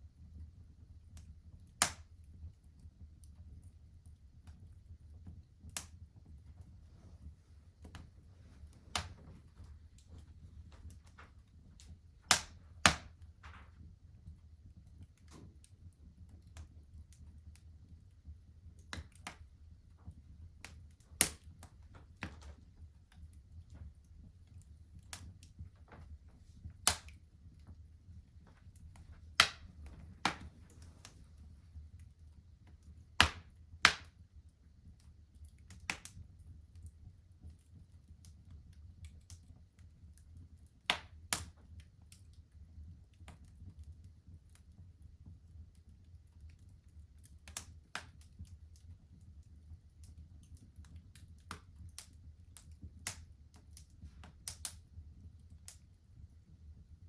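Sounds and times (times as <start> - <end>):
fire crackling and popping: 0.0 - 57.0.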